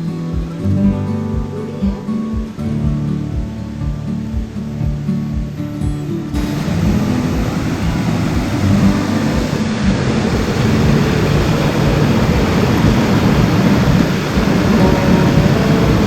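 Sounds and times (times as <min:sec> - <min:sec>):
mountain stream rushing: 0:06.2 - 0:16.0.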